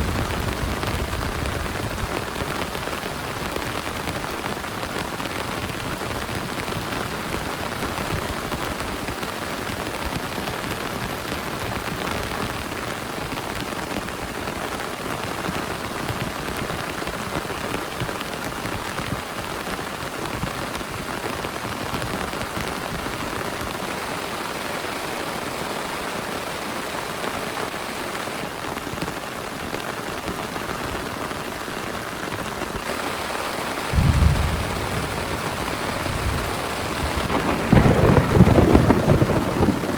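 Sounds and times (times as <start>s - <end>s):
heavy rain pouring: 0.0s - 39.9s
loud thunder clap: 33.9s - 39.9s.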